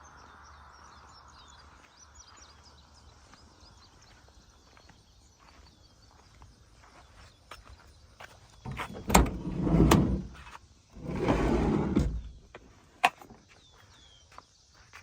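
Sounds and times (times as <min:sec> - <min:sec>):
sliding door rolling along track: 0:08.7 - 0:10.4, 0:11.0 - 0:12.4.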